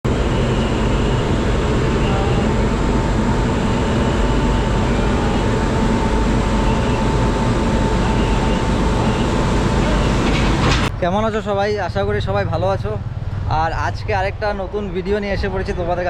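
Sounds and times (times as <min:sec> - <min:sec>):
passenger train rumbling: 0:00.0 - 0:16.0
faint steady whine: 0:00.1 - 0:16.0.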